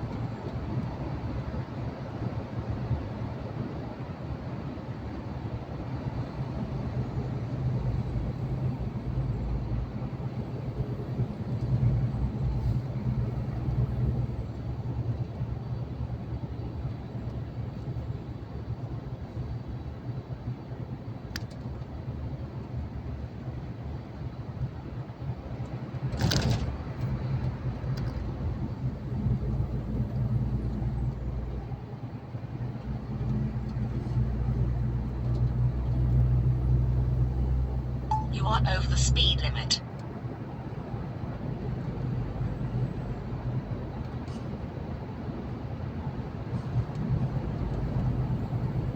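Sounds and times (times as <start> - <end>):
truck engine and tyre drone: 0.0 - 24.0, 24.9 - 48.9
truck engine drone: 32.9 - 39.8.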